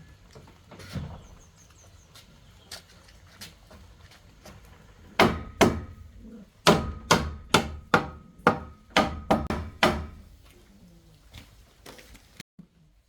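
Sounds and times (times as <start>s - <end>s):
metal tool striking wood: 5.2s - 10.4s.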